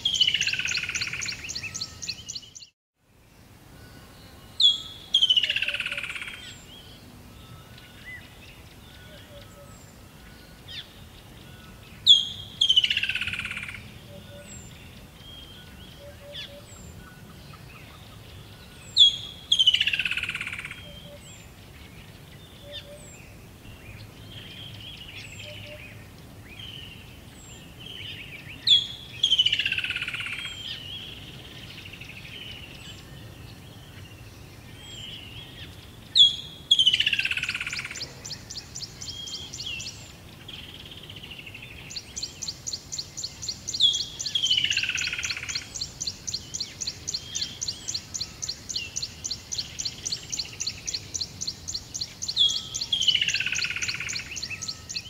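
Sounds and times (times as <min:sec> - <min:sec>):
soft bird chirps: 0:00.0 - 0:02.8.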